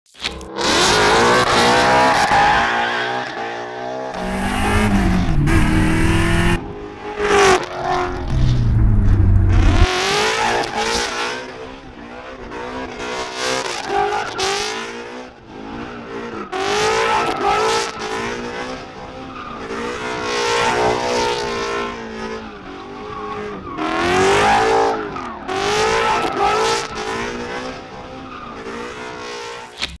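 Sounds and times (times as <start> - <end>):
car engine revving hard: 4.1 - 11.5.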